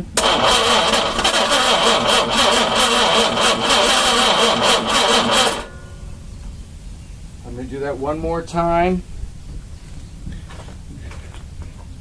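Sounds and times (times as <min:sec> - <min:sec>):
engine cranking on starter motor: 0:00.0 - 0:05.8.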